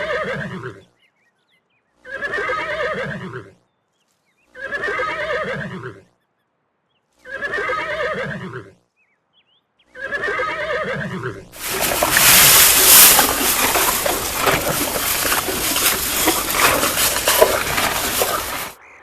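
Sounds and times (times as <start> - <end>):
horse whinnying: 11.6 - 18.8
water splashing: 11.6 - 18.8.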